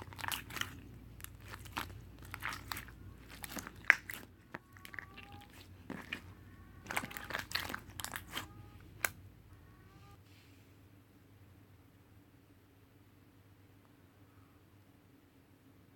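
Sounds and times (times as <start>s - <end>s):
crunching and chewing food: 0.0s - 9.2s
faint squeaks: 2.4s - 10.2s.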